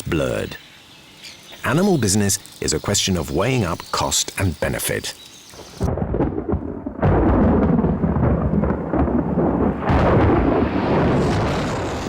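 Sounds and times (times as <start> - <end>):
deep rumble: 5.9 - 12.0.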